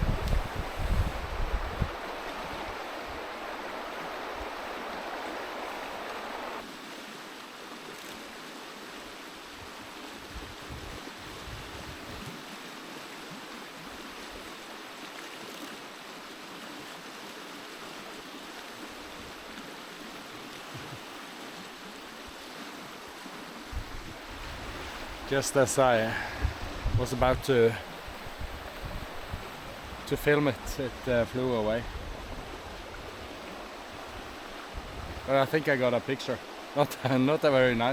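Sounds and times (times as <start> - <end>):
wind buffeting microphone: 0.0 - 3.3, 10.3 - 12.3, 23.7 - 25.4, 26.1 - 30.1, 31.7 - 35.3
stream water rushing: 0.0 - 37.9.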